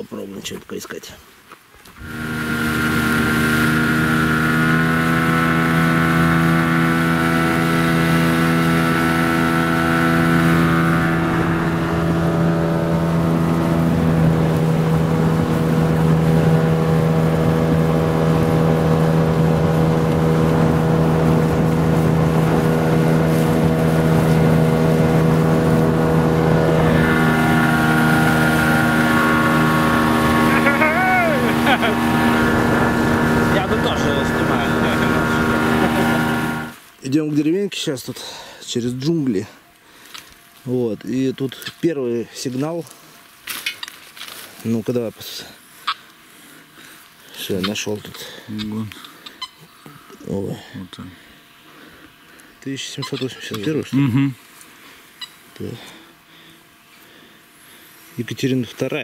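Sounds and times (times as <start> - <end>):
vehicle engine humming: 2.0 - 36.9.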